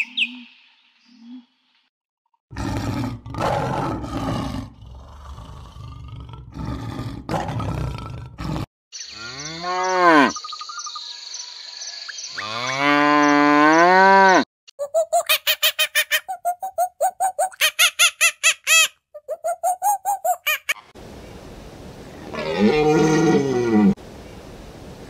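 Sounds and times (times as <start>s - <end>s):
leopard growling: 2.5s - 8.7s
cattle mooing: 9.2s - 10.4s, 12.4s - 14.4s, 22.3s - 24.0s.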